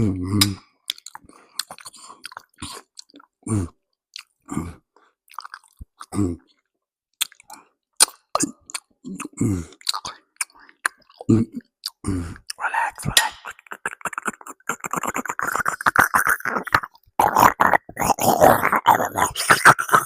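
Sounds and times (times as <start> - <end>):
mouth clicks: 0.4 - 3.3, 7.2 - 20.0
chewing pasta: 0.8 - 3.4, 5.2 - 20.0.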